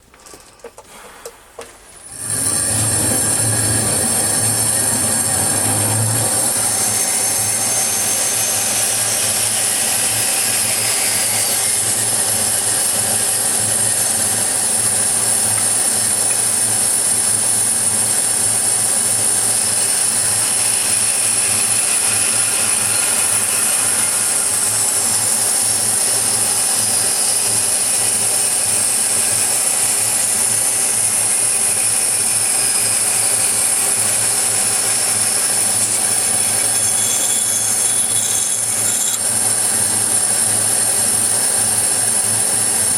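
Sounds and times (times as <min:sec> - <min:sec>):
low motor hum: 0:02.0 - 0:14.3
saw blade squealing on metal: 0:05.6 - 0:12.1, 0:32.4 - 0:39.5.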